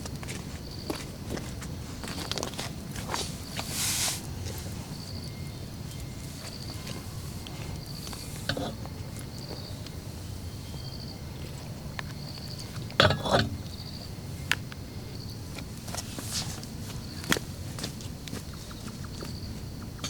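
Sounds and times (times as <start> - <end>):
low background noise: 0.0 - 20.0
insect trilling: 3.0 - 15.4.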